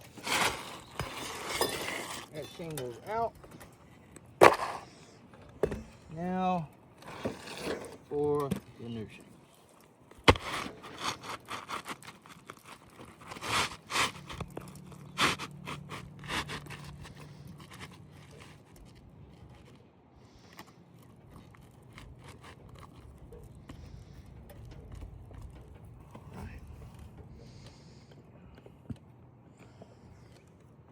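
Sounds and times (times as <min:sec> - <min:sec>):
roof shingles scraping: 0:00.0 - 0:03.4, 0:07.0 - 0:08.3, 0:10.2 - 0:19.6.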